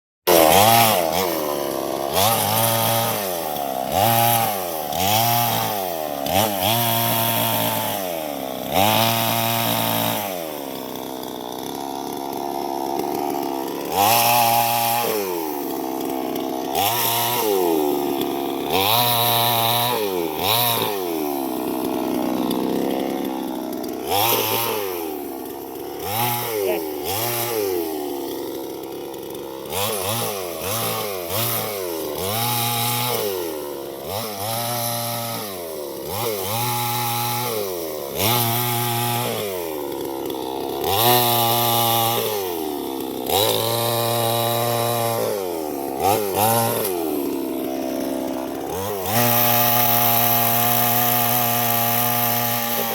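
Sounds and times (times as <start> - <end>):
chainsaw engine revving: 0.2 - 52.9.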